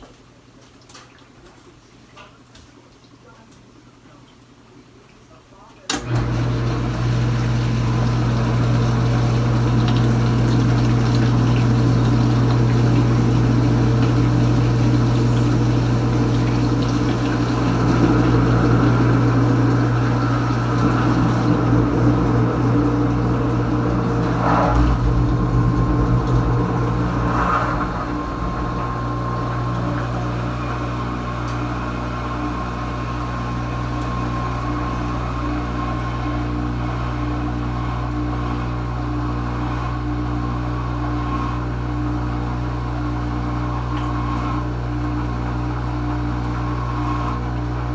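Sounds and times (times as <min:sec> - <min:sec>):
dishwasher pump humming: 0:05.9 - 0:39.6
water churning and spraying: 0:06.5 - 0:31.4.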